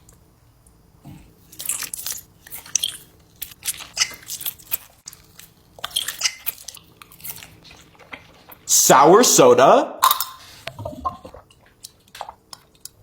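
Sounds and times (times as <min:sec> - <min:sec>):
person chewing crunchy bites: 0:01.2 - 0:08.7.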